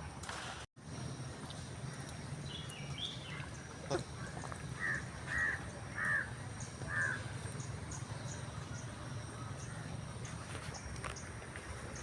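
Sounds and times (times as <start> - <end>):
crow cawing: 4.8 - 6.3, 6.9 - 7.2.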